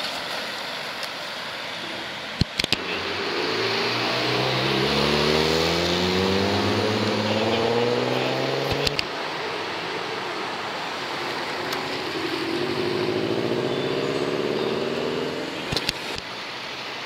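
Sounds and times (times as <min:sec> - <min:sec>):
car engine accelerating: 0:02.7 - 0:16.2
sharp clicks: 0:08.7 - 0:09.1, 0:15.6 - 0:16.2.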